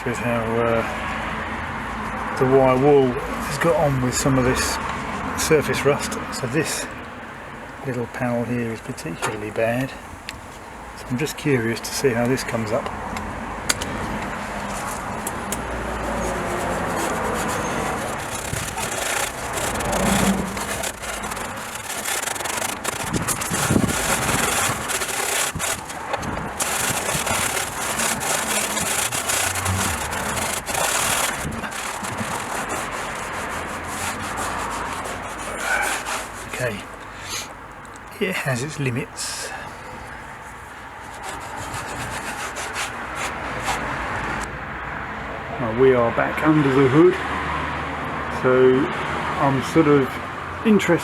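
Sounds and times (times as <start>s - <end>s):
steel wool scrubbing metal: 14.4s - 37.1s, 40.5s - 44.5s.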